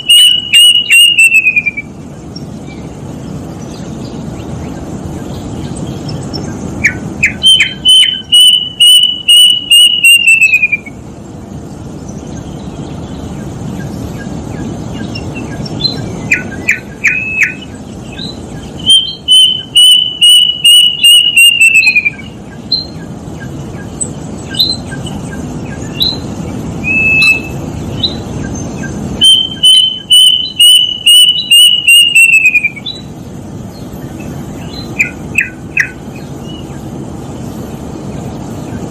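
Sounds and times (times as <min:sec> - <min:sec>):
cuckoo whistled song: 0:00.0 - 0:02.0, 0:06.8 - 0:11.0, 0:15.0 - 0:23.9, 0:24.5 - 0:33.1, 0:34.6 - 0:36.6
faint bird chirps: 0:00.0 - 0:11.0, 0:11.6 - 0:38.9.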